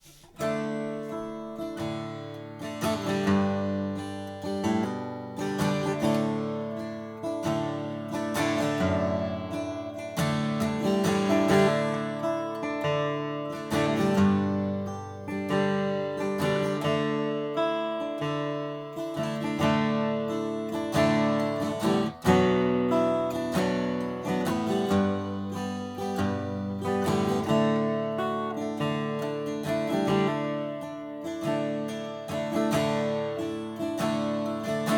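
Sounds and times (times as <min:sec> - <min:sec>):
acoustic guitar strummed and picked: 0:00.0 - 0:34.9.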